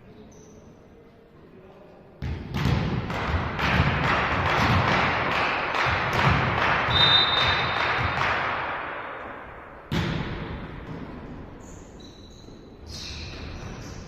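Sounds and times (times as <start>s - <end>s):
volleyball hit: 2.2s - 8.8s, 9.9s - 11.1s
people clapping: 3.2s - 8.8s
high whistle: 6.9s - 7.8s.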